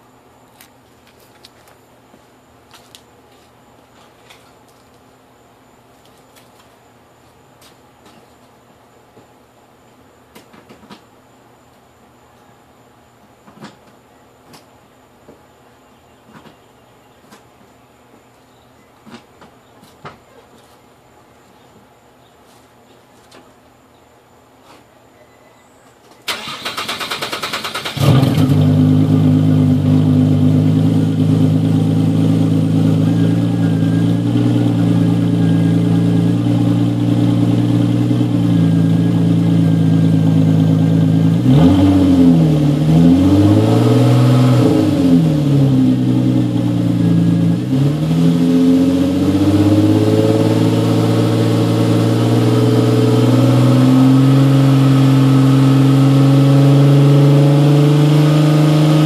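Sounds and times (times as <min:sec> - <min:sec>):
car engine idling: 0:26.3 - 0:41.4
car engine revving: 0:26.3 - 0:59.0.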